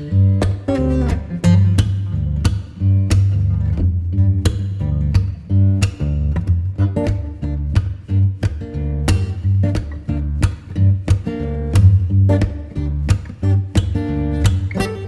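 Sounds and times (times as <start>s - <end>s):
bass line: 0.0s - 15.0s
plucked acoustic guitar: 0.0s - 15.0s.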